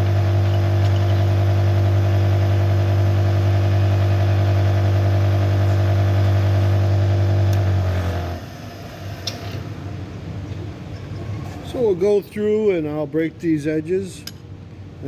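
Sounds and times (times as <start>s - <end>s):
electric motor humming: 0.0s - 9.4s.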